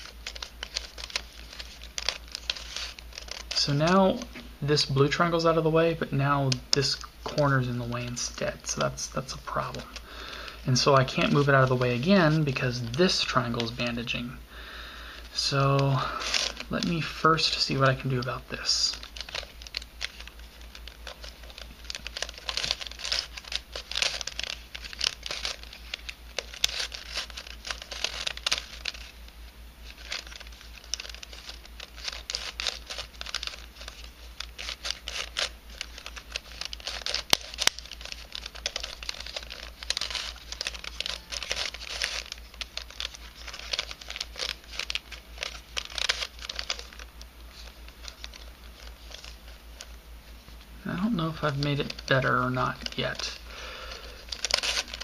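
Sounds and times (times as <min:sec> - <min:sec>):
plastic puzzle pieces clicking: 0:30.0 - 0:47.0.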